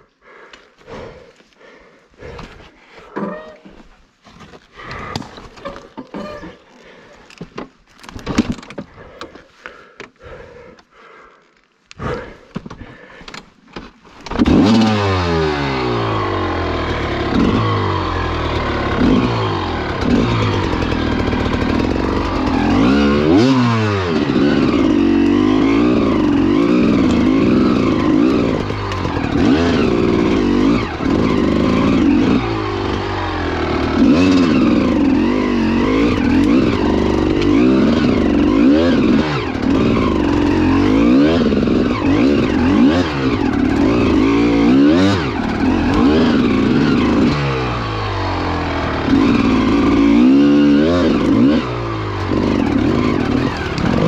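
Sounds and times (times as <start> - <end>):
two-stroke engine revving: 14.3 - 54.0.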